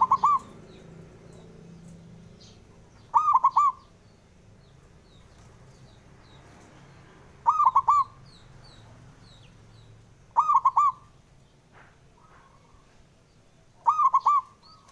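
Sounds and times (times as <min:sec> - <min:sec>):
dove cooing: 0:00.0 - 0:00.8, 0:02.4 - 0:03.9, 0:07.4 - 0:08.2, 0:10.4 - 0:11.1, 0:13.8 - 0:14.9.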